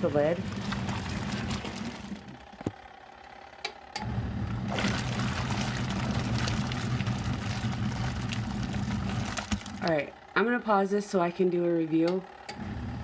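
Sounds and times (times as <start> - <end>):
agitator churning water: 0.0 - 2.6, 4.5 - 9.9
washing machine motor humming: 0.0 - 13.0.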